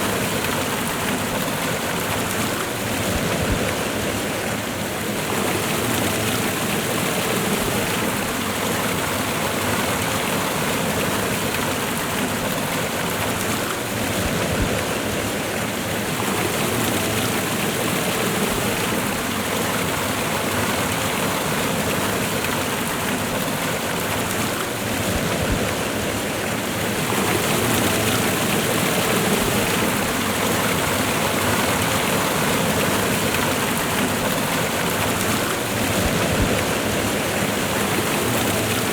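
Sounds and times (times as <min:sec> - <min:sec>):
waterfall and rushing river: 0:00.0 - 0:38.9.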